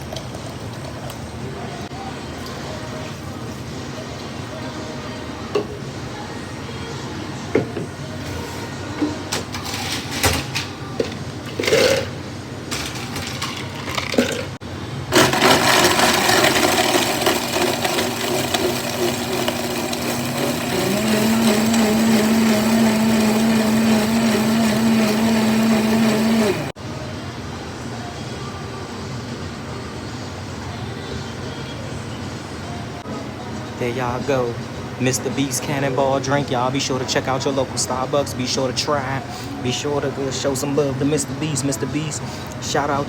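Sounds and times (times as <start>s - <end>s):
drink blender running: 11.5s - 26.8s.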